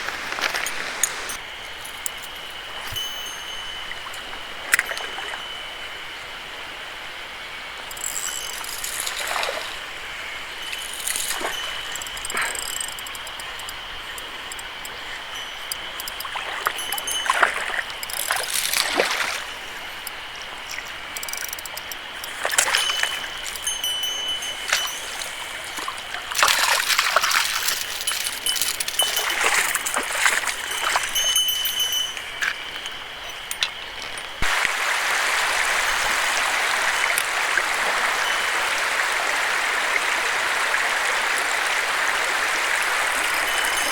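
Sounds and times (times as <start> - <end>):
mountain stream flowing: 0.0 - 43.9.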